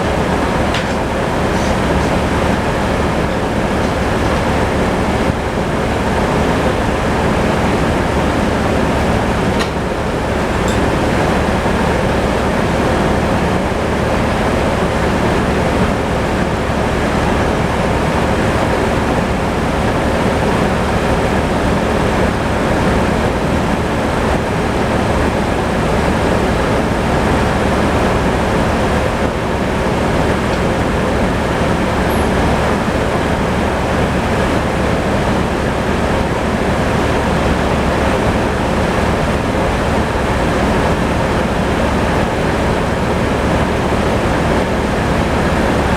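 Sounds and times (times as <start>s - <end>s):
tractor engine running: 0.0s - 15.8s.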